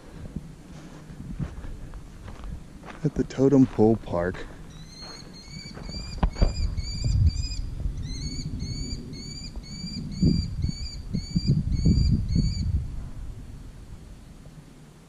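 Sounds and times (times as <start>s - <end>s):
low rumble: 0.0s - 15.0s
footsteps on grass: 0.2s - 6.6s
bird chirping high upslurred: 4.7s - 12.7s.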